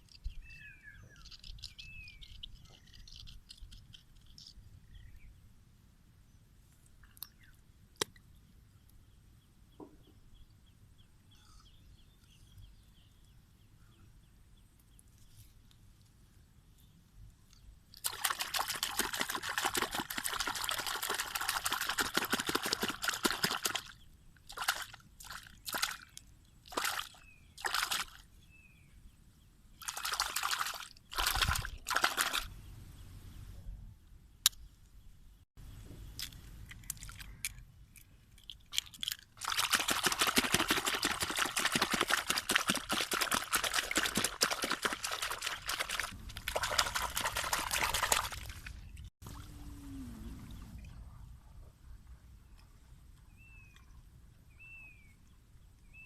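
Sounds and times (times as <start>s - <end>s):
water pouring and sloshing: 17.9s - 28.3s, 29.8s - 32.5s, 38.4s - 51.1s.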